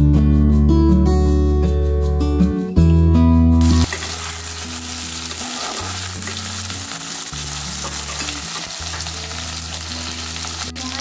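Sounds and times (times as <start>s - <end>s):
guitar music: 0.0s - 11.0s
potatoes sizzling in hot oil: 3.6s - 11.0s
metal spatula stirring: 3.8s - 8.8s.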